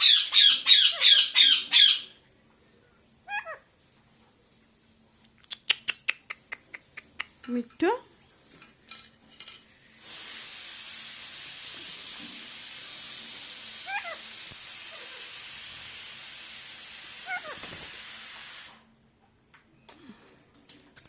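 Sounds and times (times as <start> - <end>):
parrot wavering call: 0.0 - 2.2, 3.2 - 3.6, 13.8 - 14.3, 17.2 - 17.6
steady hiss: 9.6 - 19.0.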